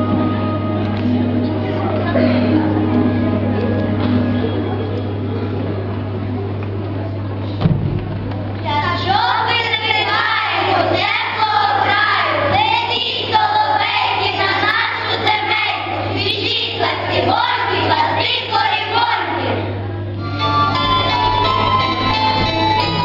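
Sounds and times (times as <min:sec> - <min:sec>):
steady low hum: 0:00.0 - 0:23.0
children singing together: 0:08.7 - 0:19.8.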